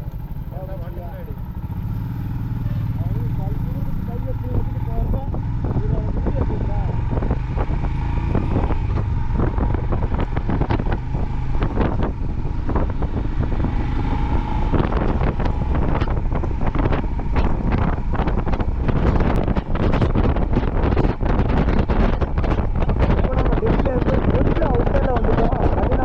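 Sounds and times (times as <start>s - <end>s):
motorcycle engine running: 0.0s - 26.0s
wind buffeting microphone: 0.0s - 26.0s.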